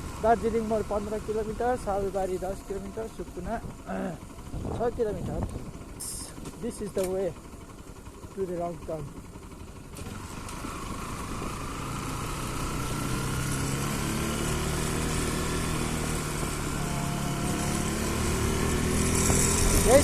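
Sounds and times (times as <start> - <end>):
motorcycle engine accelerating: 0.0 - 20.0
wind noise: 4.5 - 5.7.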